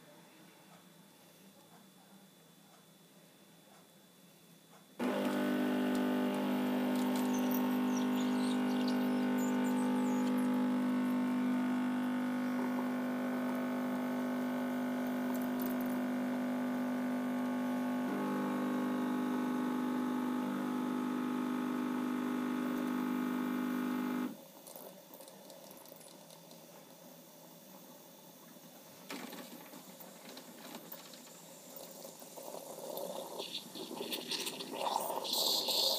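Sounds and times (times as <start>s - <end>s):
coffee machine pump humming: 5.0s - 26.7s, 29.1s - 35.9s.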